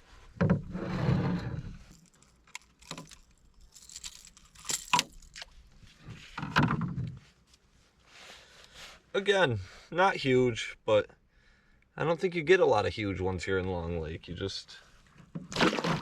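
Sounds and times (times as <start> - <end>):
clinks knocks and scrapes: 0.4 - 7.2
metallic jangling: 1.9 - 5.4.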